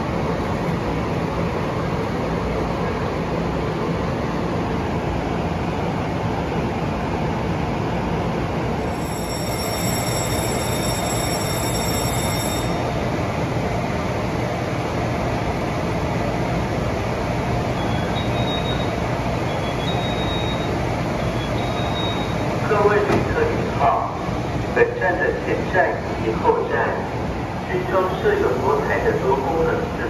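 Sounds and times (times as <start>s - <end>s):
train equipment hum and hiss: 0.0s - 30.0s
short high tones: 8.9s - 13.0s.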